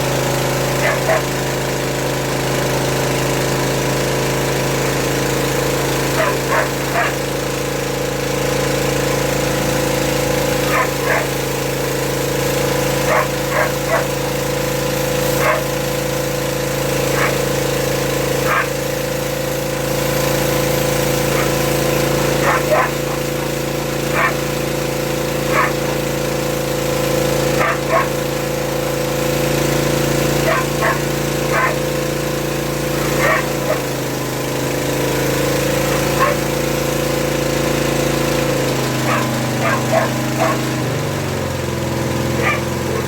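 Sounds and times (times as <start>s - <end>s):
small petrol engine running: 0.0s - 43.0s
dog barking and yipping: 0.8s - 1.3s, 6.2s - 7.2s, 10.7s - 11.4s, 13.1s - 14.2s, 15.4s - 15.8s, 17.1s - 17.4s, 18.4s - 18.8s, 21.3s - 21.6s, 22.4s - 23.3s, 24.1s - 24.4s, 25.5s - 26.0s, 27.6s - 28.2s, 30.4s - 31.9s, 33.0s - 34.0s, 36.2s - 36.5s, 39.0s - 40.7s, 42.4s - 43.0s.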